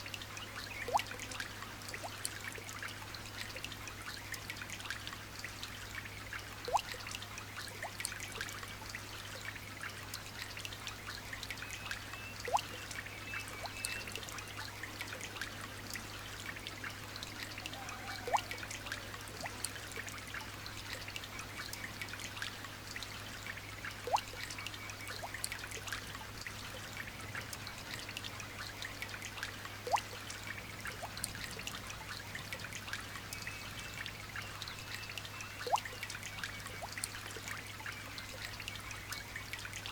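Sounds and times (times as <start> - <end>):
trickling water: 0.0 - 39.9
single water drip: 6.6 - 7.0, 11.4 - 14.4, 17.7 - 20.1, 24.0 - 25.8, 29.4 - 30.3, 34.9 - 37.6.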